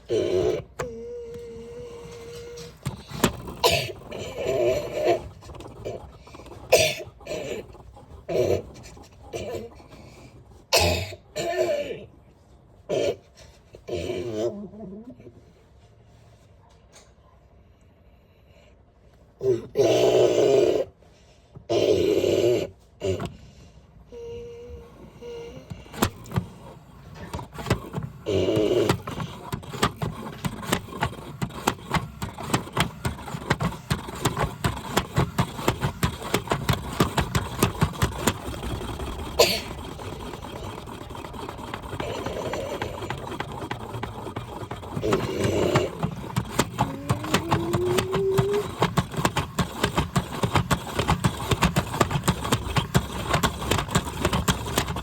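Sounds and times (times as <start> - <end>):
washing machine clattering: 2.1 - 11.1, 25.2 - 55.0.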